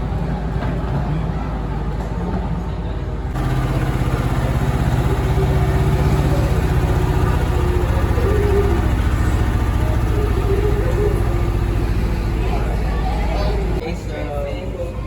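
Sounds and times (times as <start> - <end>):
train engine pulsing: 3.3 - 13.9.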